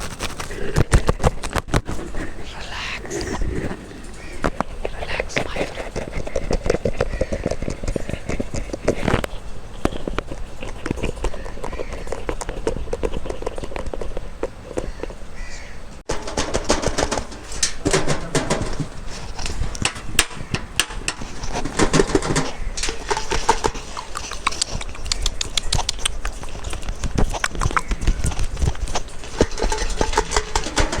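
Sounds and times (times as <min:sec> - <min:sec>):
fast clicks and crackles: 0:00.0 - 0:02.2, 0:16.1 - 0:31.0.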